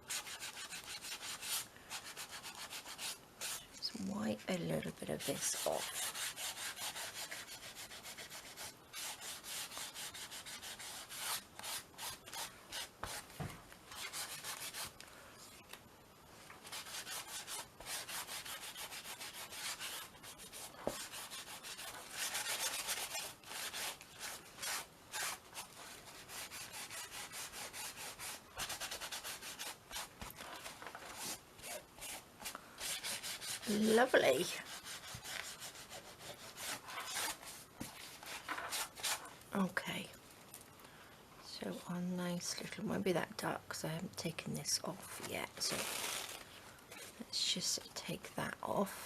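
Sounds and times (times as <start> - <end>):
tissue rubbing on canvas: 45.6 - 46.4.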